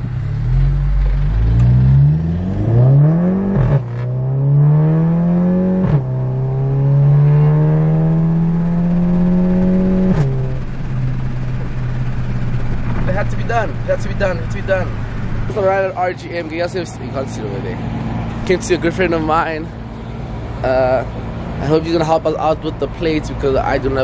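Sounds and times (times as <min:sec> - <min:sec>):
car engine accelerating hard: 0:00.0 - 0:19.2.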